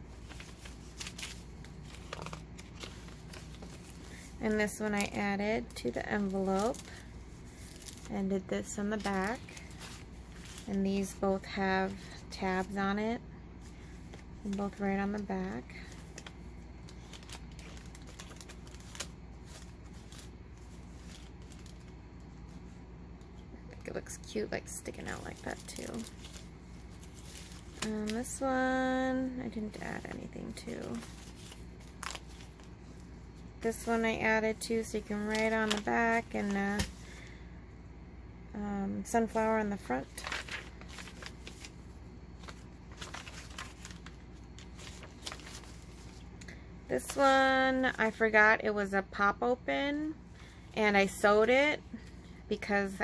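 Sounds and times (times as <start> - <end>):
paper pages rustling: 0.1 - 12.8, 13.6 - 22.6, 25.0 - 28.4, 29.2 - 37.1, 39.3 - 46.3.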